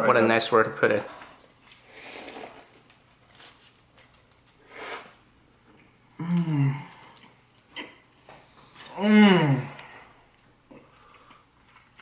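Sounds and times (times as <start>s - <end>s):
person eating: 1.7s - 2.9s, 4.3s - 12.0s
person humming: 6.2s - 7.1s, 8.9s - 10.0s.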